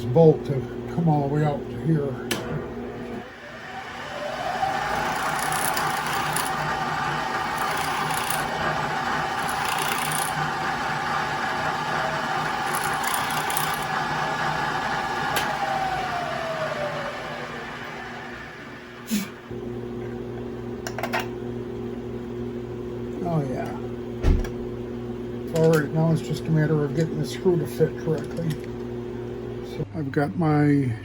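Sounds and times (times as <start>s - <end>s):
drilling machine motor running: 0.0s - 19.9s, 23.2s - 29.8s
drill scraping metal: 4.6s - 15.6s.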